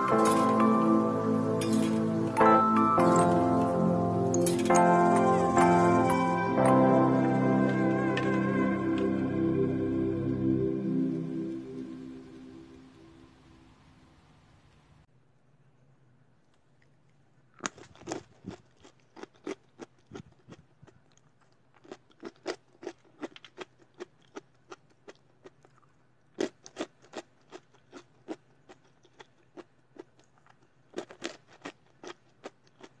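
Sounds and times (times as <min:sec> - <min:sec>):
crunchy peanuts being chewed: 0:16.5 - 0:33.0.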